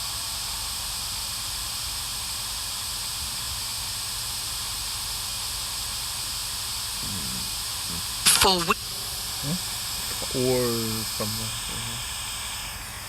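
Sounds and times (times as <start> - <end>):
static hiss: 5.9 - 13.0.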